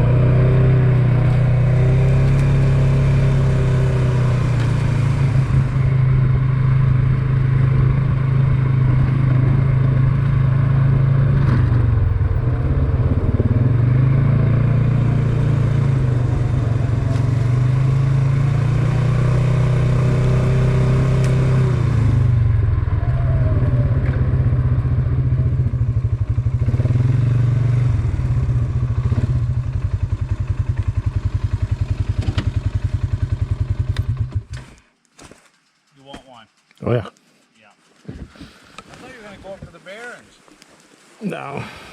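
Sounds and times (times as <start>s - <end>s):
off-road motorcycle engine revving: 0.0s - 34.9s.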